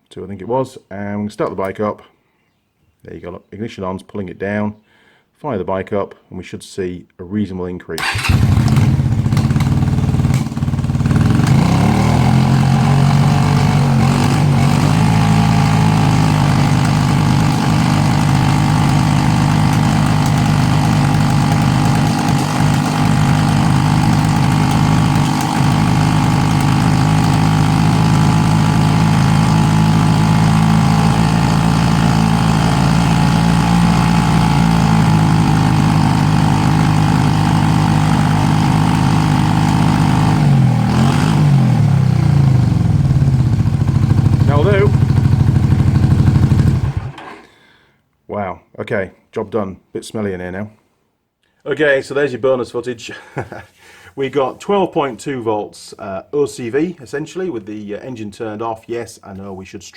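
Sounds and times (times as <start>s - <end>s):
motorcycle engine misfiring idle: 8.0s - 47.4s.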